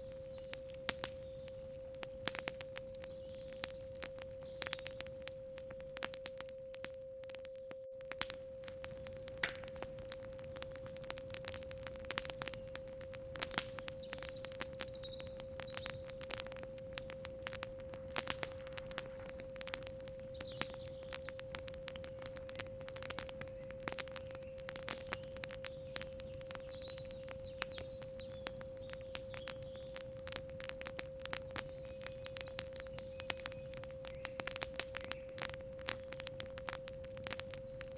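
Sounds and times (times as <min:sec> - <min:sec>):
faint bird chirps: 0:00.0 - 0:01.9, 0:02.9 - 0:05.2, 0:13.6 - 0:17.2, 0:18.5 - 0:30.2, 0:31.6 - 0:35.8
campfire crackling: 0:00.0 - 0:37.9.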